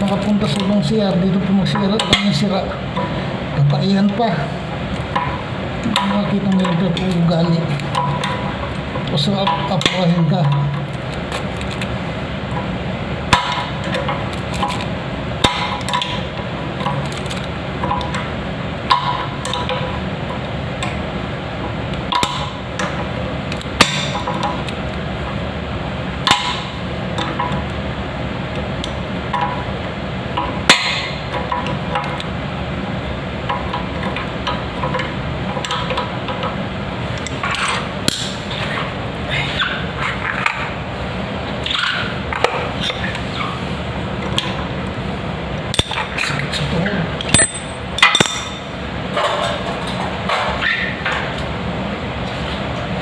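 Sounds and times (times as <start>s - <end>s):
steady background hiss: 0.0s - 53.0s
hand tools clinking and knocking: 45.7s - 51.4s.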